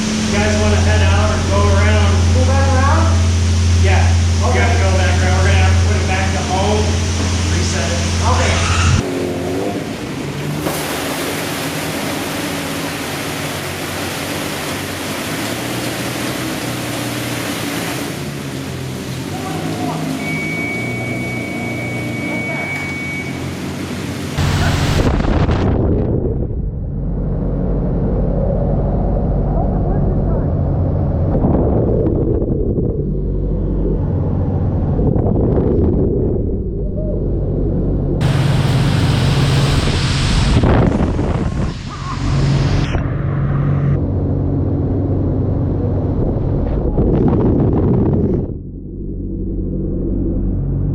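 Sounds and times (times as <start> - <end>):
high-pressure water jets spraying: 0.0 - 9.0, 10.5 - 25.2, 38.2 - 42.9
wind on microphone: 24.4 - 43.2, 45.4 - 49.6.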